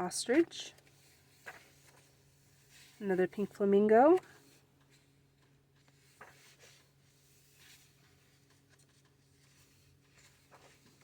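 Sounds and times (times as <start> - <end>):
low steady hum: 0.0 - 11.0
book pages turning: 0.7 - 3.0, 4.1 - 11.0.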